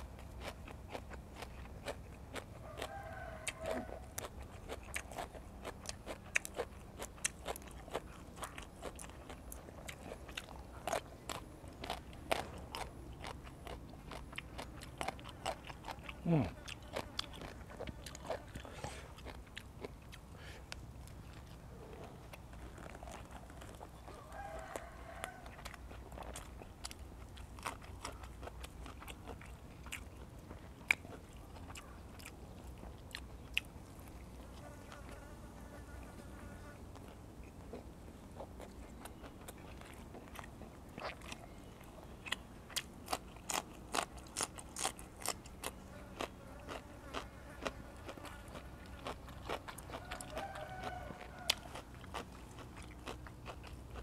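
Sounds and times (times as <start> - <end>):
wet chewing with mouth smacks: 0.0 - 35.2, 36.9 - 54.0.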